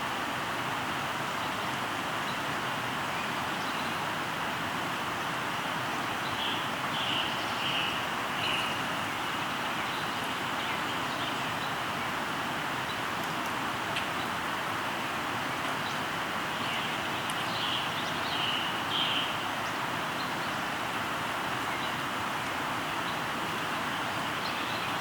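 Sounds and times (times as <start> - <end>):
river water rushing: 0.0 - 25.0
bird calling: 16.6 - 20.5.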